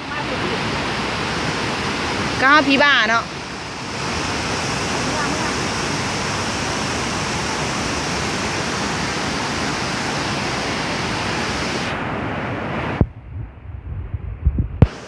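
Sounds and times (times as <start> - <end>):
quiet low bumps: 13.0 - 14.9.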